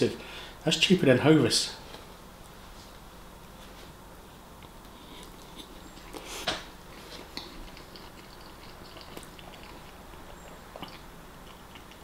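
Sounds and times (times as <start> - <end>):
wet smacking chewing: 4.6 - 12.0.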